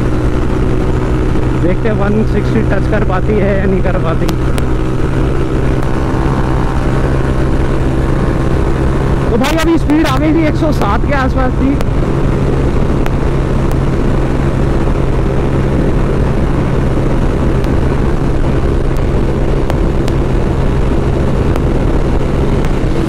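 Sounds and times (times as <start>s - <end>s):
motorcycle engine at high revs: 0.0s - 23.0s
wind rush on microphone: 0.0s - 23.0s.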